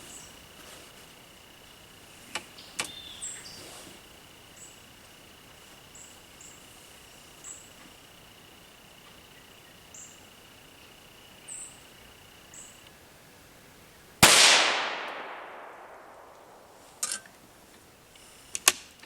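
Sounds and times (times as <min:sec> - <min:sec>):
insect drone: 0:00.0 - 0:19.0
rifle shot with echo: 0:14.2 - 0:16.8.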